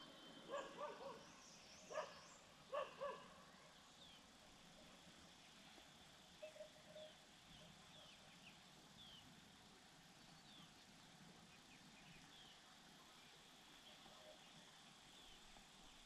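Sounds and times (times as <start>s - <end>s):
faint small-bird chirps: 6.4s - 9.3s.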